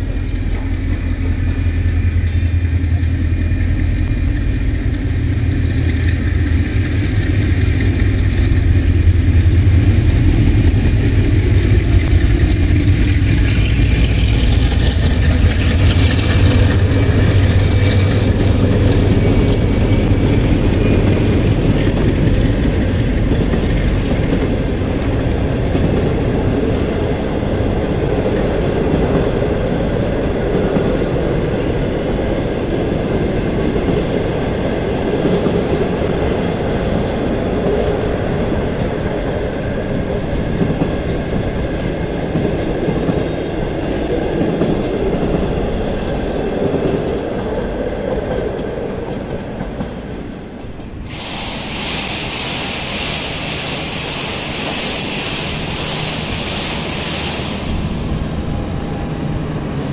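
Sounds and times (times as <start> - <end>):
passenger train rumbling past: 0.0 - 59.9
loud high hiss: 51.0 - 58.5.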